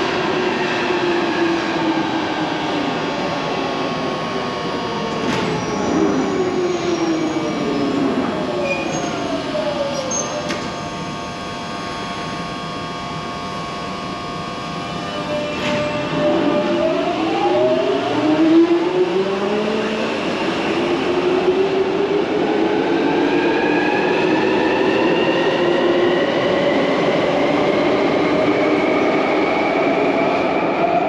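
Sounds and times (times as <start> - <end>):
train whining tones: 0.0 - 31.0.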